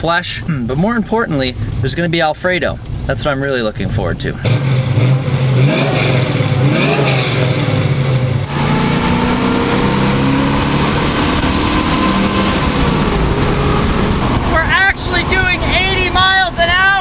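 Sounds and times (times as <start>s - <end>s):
car engine exhaust note: 3.8s - 17.0s.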